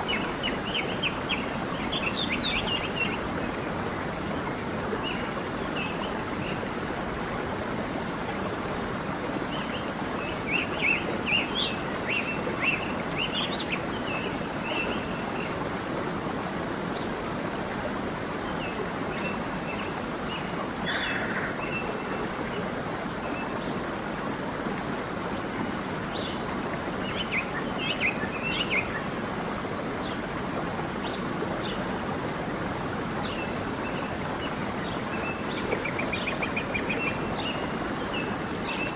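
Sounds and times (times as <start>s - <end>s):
stream rushing: 0.0s - 38.9s.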